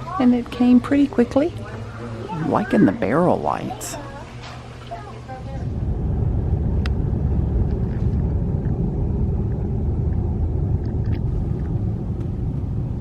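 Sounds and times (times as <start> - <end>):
car driving rumble inside cabin: 5.6 - 13.0.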